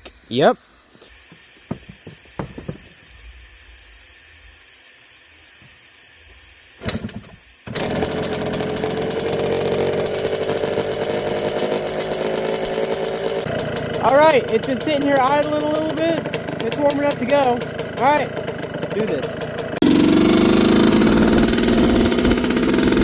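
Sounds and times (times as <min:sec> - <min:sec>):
two-stroke engine starting and idling: 0:06.8 - 0:23.0.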